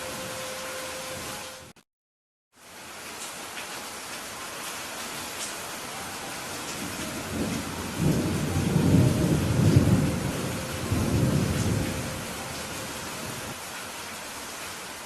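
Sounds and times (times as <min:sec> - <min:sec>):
steady rain falling: 0:02.5 - 0:15.0
thunder rumbling: 0:06.5 - 0:13.6.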